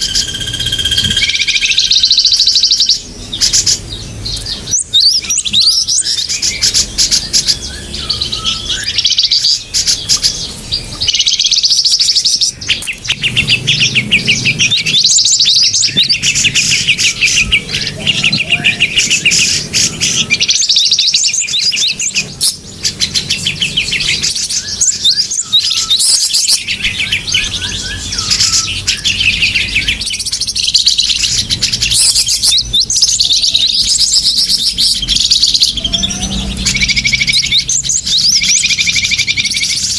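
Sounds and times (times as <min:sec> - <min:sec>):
small songbirds chirping and trilling: 0:00.0 - 0:39.9.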